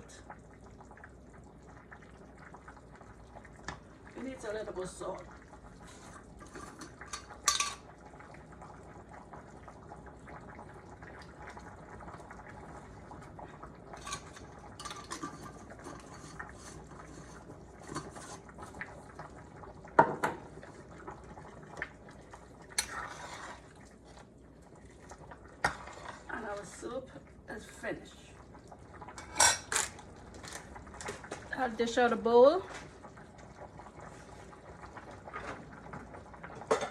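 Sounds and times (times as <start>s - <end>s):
soup bubbling: 0.0s - 36.9s
spoon stirring and scraping pot: 5.8s - 7.9s, 13.9s - 18.8s, 22.8s - 23.9s, 25.6s - 26.3s.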